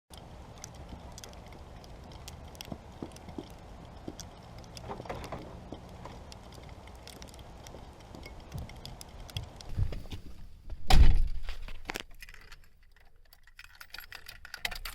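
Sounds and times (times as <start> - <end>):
faint footsteps: 0.1 - 11.9.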